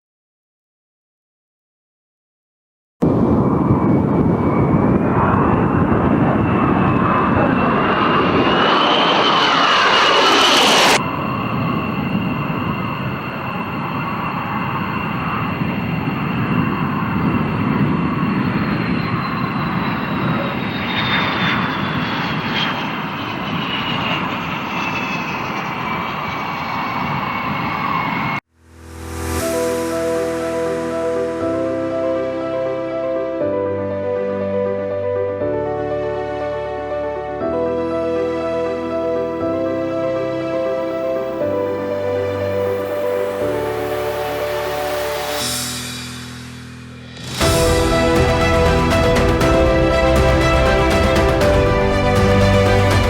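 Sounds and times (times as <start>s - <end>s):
aircraft engines running: 3.0s - 28.4s, 35.6s - 53.0s
high whine: 3.0s - 53.0s.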